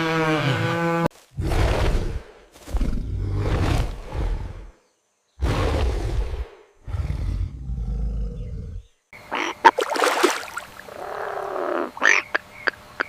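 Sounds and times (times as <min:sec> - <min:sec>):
low rumbling animal roar: 0:01.4 - 0:04.8, 0:05.4 - 0:09.0
noisy animal calls: 0:08.4 - 0:09.9, 0:10.8 - 0:13.0.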